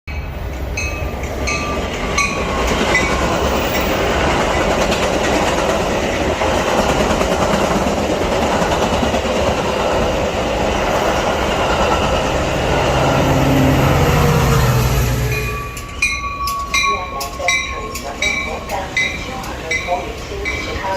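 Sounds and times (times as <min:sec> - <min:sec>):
train wheels rumbling on rails: 0:00.1 - 0:20.9.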